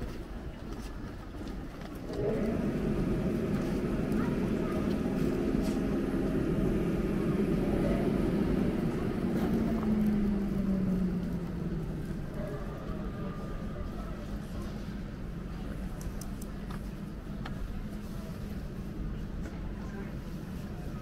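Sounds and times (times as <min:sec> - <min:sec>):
electric train rumbling: 0:00.0 - 0:21.0
motor hum: 0:02.1 - 0:12.4.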